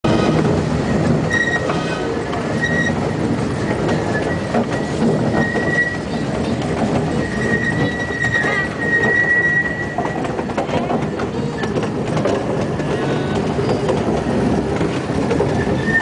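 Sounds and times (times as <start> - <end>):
steam train running: 0.0 - 16.0
train wheels squealing: 0.9 - 3.1, 3.7 - 6.3, 7.1 - 10.4, 15.5 - 16.0.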